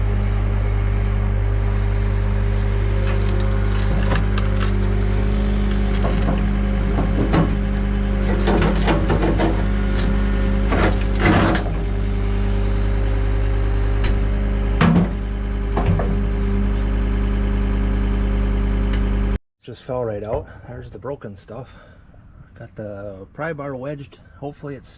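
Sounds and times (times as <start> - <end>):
diesel engine idling: 0.0 - 19.2.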